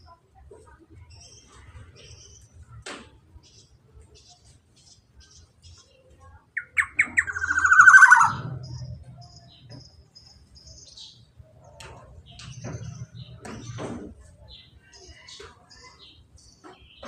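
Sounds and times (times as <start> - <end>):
faint high chirps: 4.3 - 11.2
oriole calling with rattling trill: 6.6 - 9.8.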